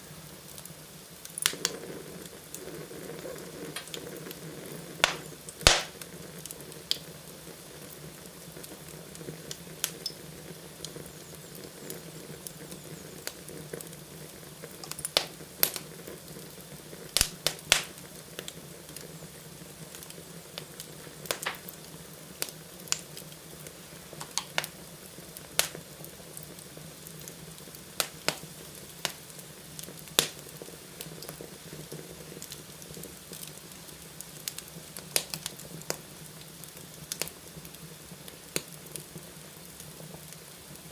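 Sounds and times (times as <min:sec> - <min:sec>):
fireplace fire crackling: 0:00.0 - 0:40.9
low fire hiss: 0:00.0 - 0:40.9
sharp pops and snaps: 0:01.2 - 0:01.9, 0:03.7 - 0:04.4, 0:05.0 - 0:07.1, 0:14.6 - 0:19.1, 0:19.9 - 0:26.6, 0:27.2 - 0:33.6, 0:34.4 - 0:36.1, 0:36.7 - 0:37.8, 0:38.4 - 0:39.0.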